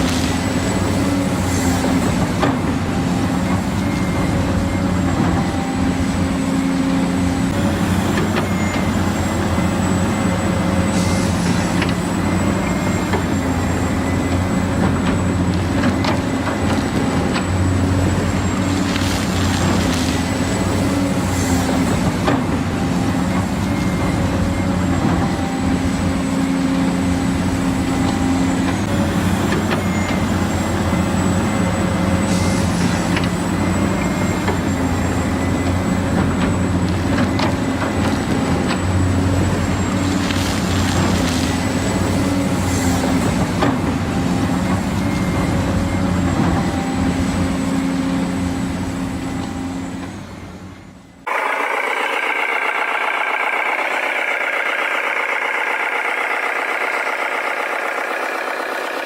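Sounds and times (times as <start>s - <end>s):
toy electric motors whirring: 51.3s - 59.0s.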